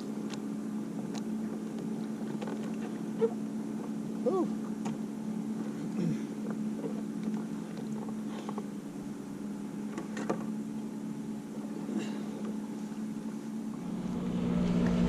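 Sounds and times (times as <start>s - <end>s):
boat motor humming: 0.0s - 15.0s
water splashes and knocks: 1.0s - 3.1s.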